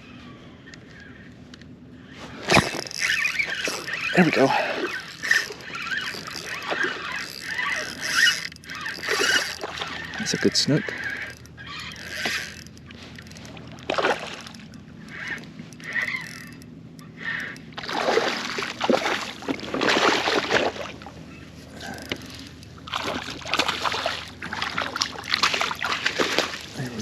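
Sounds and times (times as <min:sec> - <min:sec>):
fish splashing in water: 0:02.5 - 0:12.6, 0:13.2 - 0:14.7, 0:17.2 - 0:21.2, 0:21.8 - 0:27.0.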